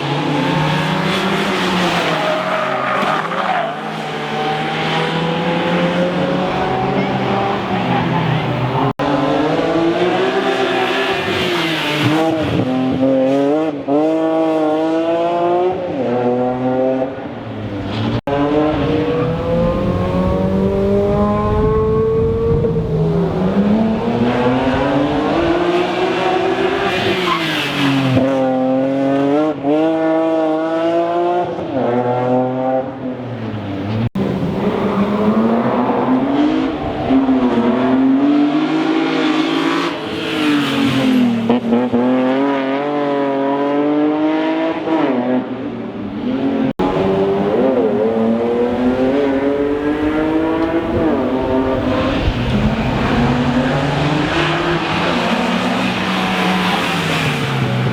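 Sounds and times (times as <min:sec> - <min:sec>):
rally car engine revving: 0:00.0 - 0:33.1, 0:46.2 - 0:57.9.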